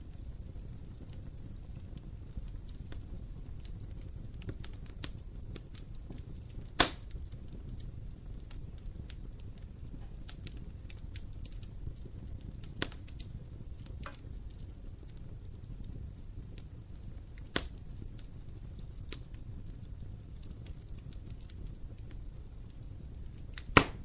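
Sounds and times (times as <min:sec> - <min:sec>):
fire crackling and popping: 0:00.0 - 0:24.0
fire flames rumbling: 0:00.0 - 0:24.0.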